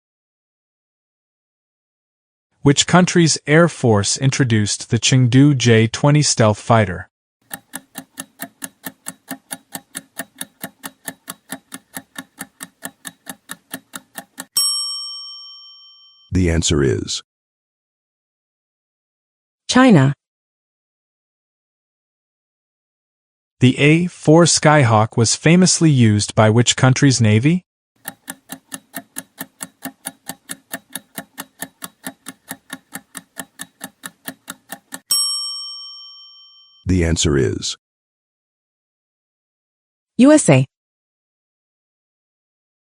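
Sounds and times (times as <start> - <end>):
countdown timer ticking: 7.4 - 14.6, 28.0 - 35.2.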